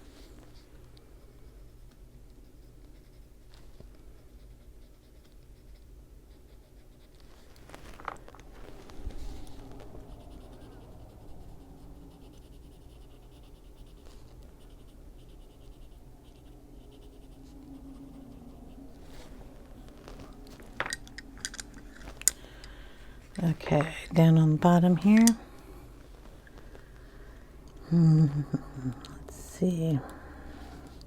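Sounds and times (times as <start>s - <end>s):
pencil scratching on paper: 0.0s - 7.8s, 8.8s - 20.7s.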